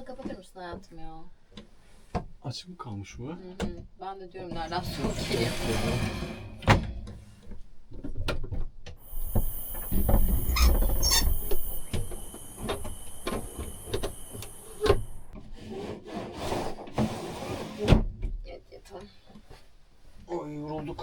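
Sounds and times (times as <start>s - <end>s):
steady high hiss: 9.0s - 15.4s
window shutting: 9.1s - 15.4s.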